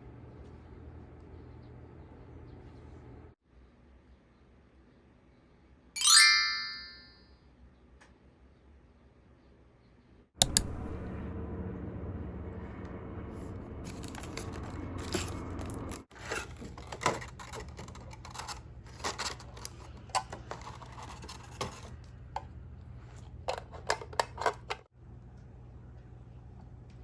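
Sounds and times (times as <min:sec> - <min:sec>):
scraping and rustling handling: 0:13.8 - 0:22.2.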